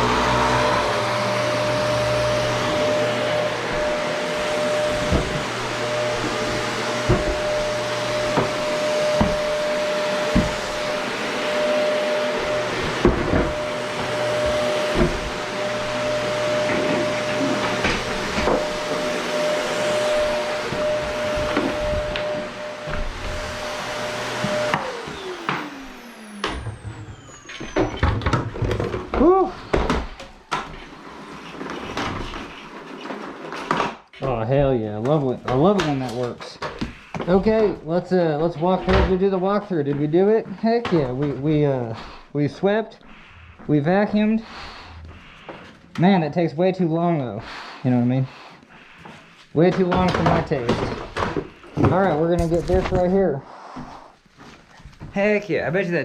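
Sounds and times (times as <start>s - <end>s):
vacuum cleaner whining: 0.0s - 56.0s
vacuum cleaner knocks: 0.1s - 30.7s, 49.7s - 53.1s.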